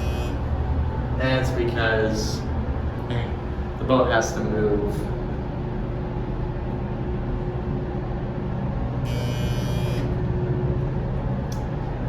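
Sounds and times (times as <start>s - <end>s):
brief high-pitched tone: 0.0s - 0.4s, 9.1s - 10.1s
elevator machinery humming: 0.0s - 12.0s.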